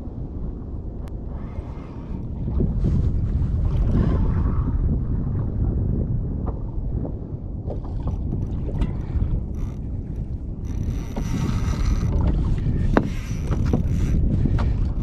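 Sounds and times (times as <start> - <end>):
water lapping against hull: 0.0 - 15.0
wind buffeting microphone: 0.0 - 15.0.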